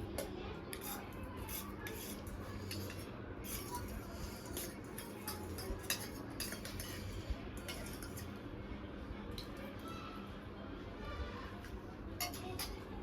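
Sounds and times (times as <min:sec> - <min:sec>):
cutlery clicking on plates: 0:00.2 - 0:08.3, 0:12.2 - 0:12.8.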